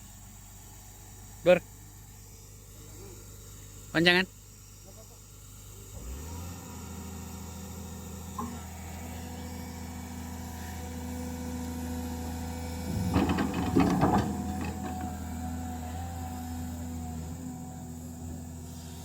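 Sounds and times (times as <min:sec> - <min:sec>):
engine humming: 0:12.7 - 0:15.5
sharp clanks and knocks: 0:12.9 - 0:15.4.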